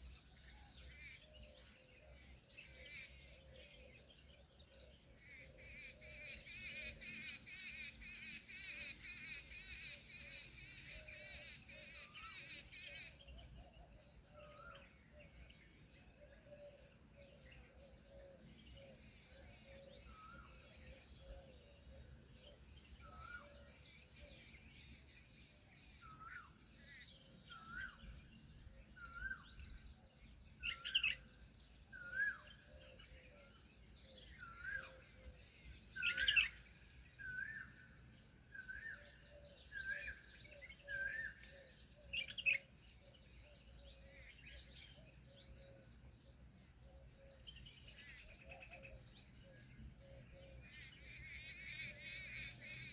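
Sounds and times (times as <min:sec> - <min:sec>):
birds chirping: 0:00.1 - 0:52.9
sharp bird calls: 0:31.9 - 0:46.1.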